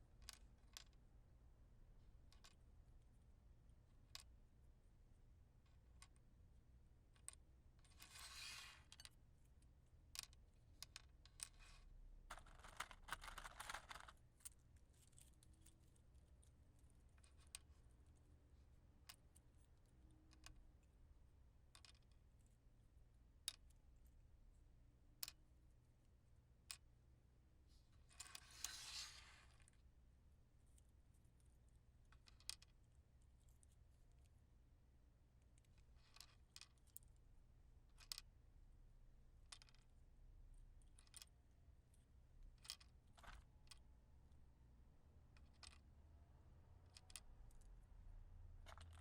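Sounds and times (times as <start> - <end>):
match lighting hiss: 8.1 - 8.8, 28.4 - 29.6.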